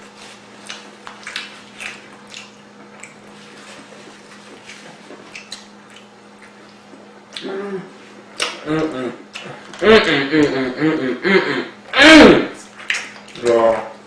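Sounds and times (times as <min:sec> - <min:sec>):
faint steady hum: 0:00.0 - 0:14.0
wet chewing and lip smacking: 0:00.6 - 0:07.5, 0:08.2 - 0:09.8, 0:12.6 - 0:13.8.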